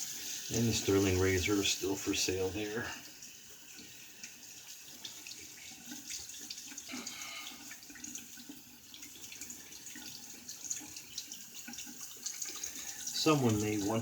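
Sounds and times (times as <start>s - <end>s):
tap water running into sink: 0.0s - 14.0s
water splashing: 3.8s - 14.0s.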